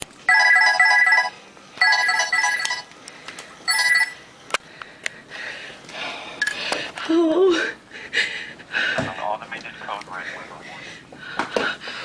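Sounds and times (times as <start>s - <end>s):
phone ringtone trilling: 0.3s - 2.9s, 3.7s - 4.2s.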